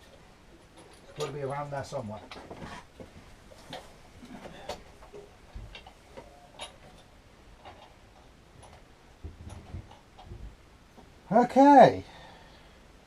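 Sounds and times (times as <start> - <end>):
metal parts clicking and tapping: 0.0 - 2.6, 4.5 - 10.5
soft low knocks: 8.7 - 11.2.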